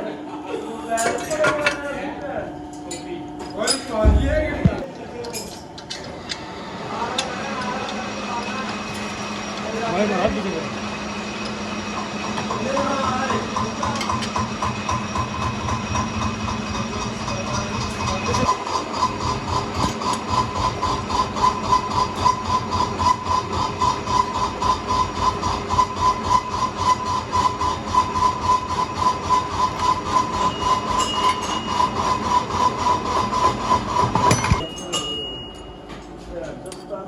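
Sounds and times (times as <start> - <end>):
machine pulsing rhythm: 4.0 - 4.9
steady ringing tone: 5.5 - 36.2.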